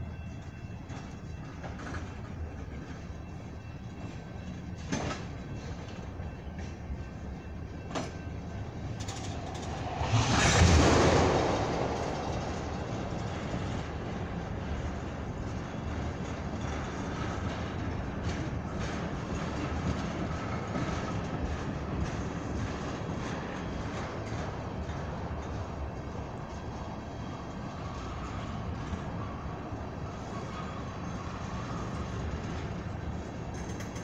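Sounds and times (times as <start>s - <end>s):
tank cars rumbling past: 8.5s - 17.2s
rushing swell: 8.6s - 15.1s
wheels clicking over rail joints: 28.8s - 34.0s.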